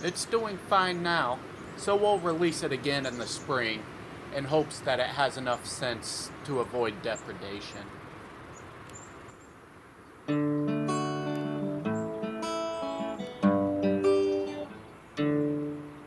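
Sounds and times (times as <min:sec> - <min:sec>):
acoustic guitar chords: 0:10.3 - 0:16.0.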